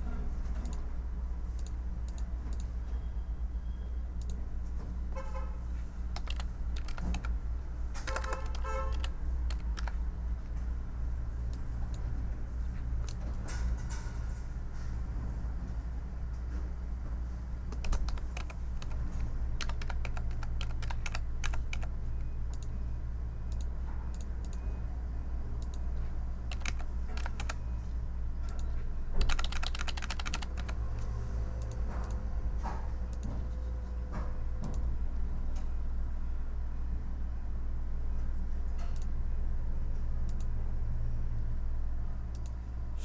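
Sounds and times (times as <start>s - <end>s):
low background hum: 0.0s - 43.0s
keyboard typing: 6.1s - 7.4s, 8.0s - 10.0s, 13.0s - 13.4s, 17.7s - 22.7s, 26.4s - 27.7s, 28.5s - 32.2s.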